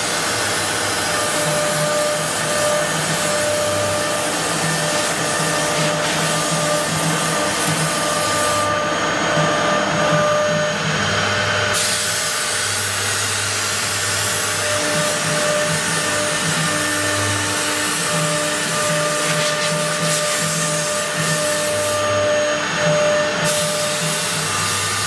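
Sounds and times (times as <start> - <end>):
wood router spindle whine: 0.0 - 25.0.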